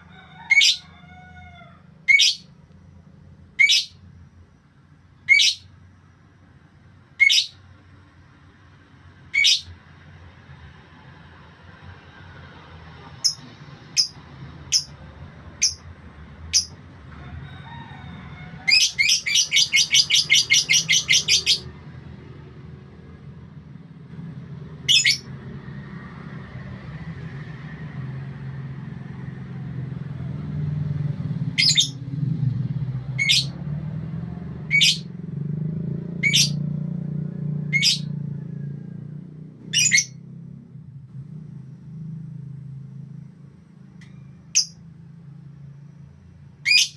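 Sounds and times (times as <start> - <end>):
songbird sharp high chirps: 18.7 - 21.7.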